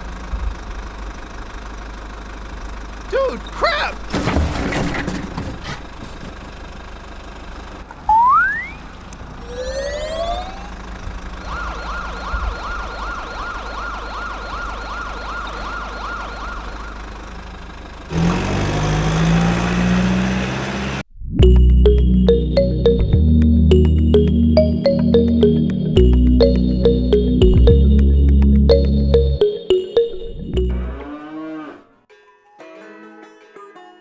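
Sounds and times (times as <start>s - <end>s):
electronic siren wailing: 8.1s - 8.8s, 9.4s - 10.8s, 11.4s - 17.0s, 23.0s - 31.8s
rising whistle-like glides: 9.4s - 10.8s.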